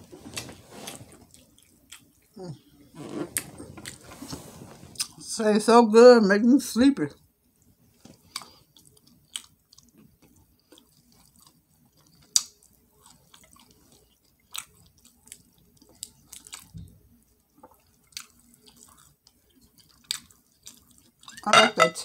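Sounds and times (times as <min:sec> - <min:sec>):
wet chewing and lip-smacking: 0:07.6 - 0:21.5.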